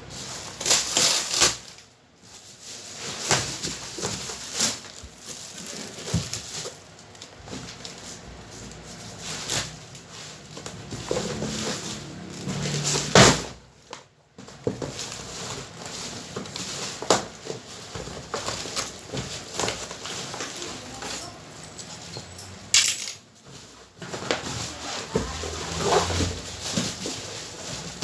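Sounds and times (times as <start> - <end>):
cardboard crackling and rustling: 0.0 - 21.4, 23.4 - 28.0
knocks and scrapes: 7.4 - 13.6, 23.4 - 28.0.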